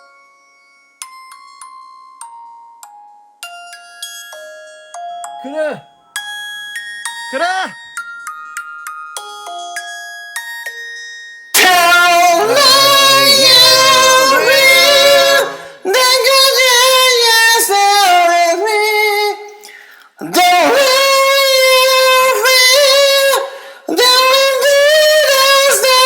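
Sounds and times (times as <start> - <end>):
a cappella singing: 11.6 - 19.6, 20.2 - 26.0.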